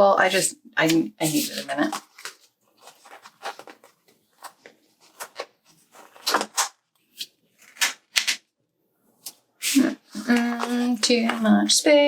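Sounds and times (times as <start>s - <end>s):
paper stickers rustling and tapping: 0.3s - 8.4s, 9.2s - 11.8s.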